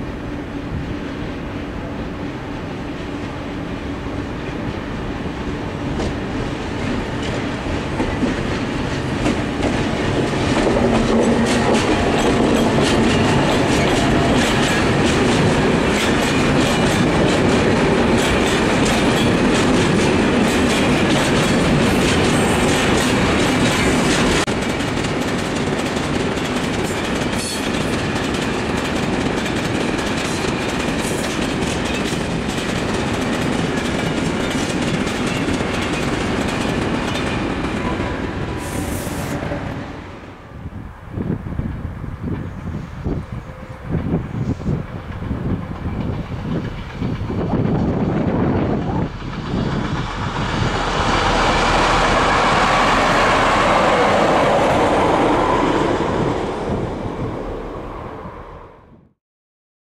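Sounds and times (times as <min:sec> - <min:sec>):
freight train wheels clattering: 0:05.8 - 0:40.0, 0:43.9 - 0:56.3.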